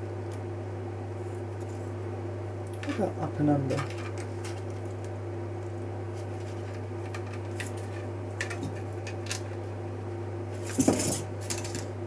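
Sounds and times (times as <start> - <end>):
steady low hum: 0.0 - 12.0
small parts clicking and tapping: 7.0 - 9.6.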